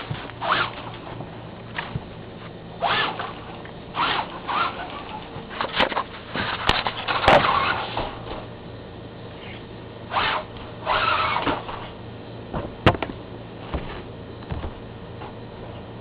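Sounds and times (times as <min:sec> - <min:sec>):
rc truck whirring: 0:04.0 - 0:05.2, 0:10.1 - 0:11.9.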